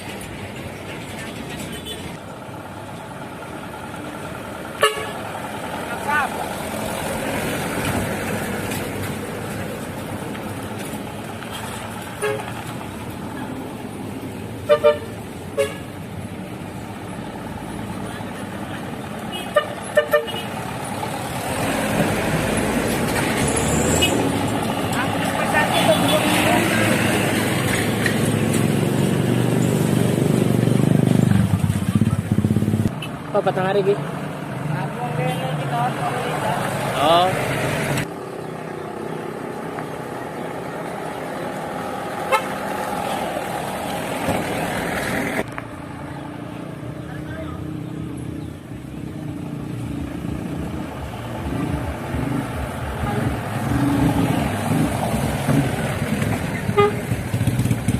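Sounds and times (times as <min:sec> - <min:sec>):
truck engines and traffic: 0:00.0 - 0:57.9
horn toots: 0:04.8 - 0:05.2, 0:12.2 - 0:12.5, 0:14.7 - 0:15.9, 0:19.3 - 0:20.6, 0:42.3 - 0:42.6, 0:56.6 - 0:57.6.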